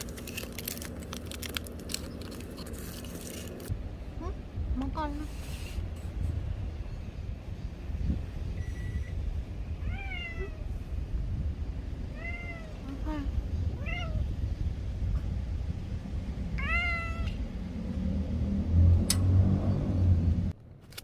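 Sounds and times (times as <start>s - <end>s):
cat meowing: 9.8s - 10.7s, 12.1s - 14.3s, 16.6s - 17.4s.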